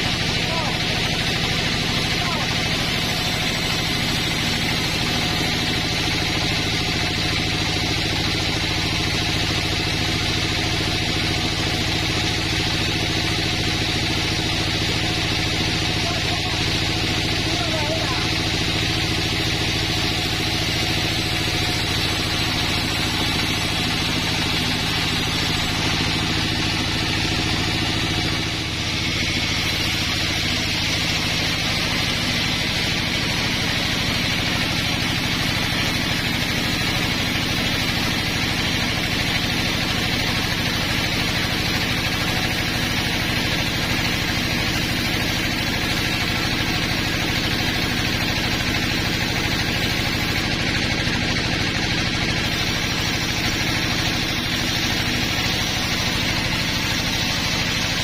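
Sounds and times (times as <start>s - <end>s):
sawmill saw humming: 0.0s - 58.0s.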